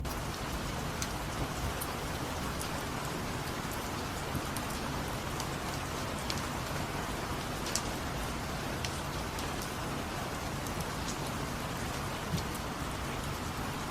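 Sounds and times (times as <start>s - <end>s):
raindrop ticks: 0.0s - 13.9s
steady rain: 0.0s - 13.9s.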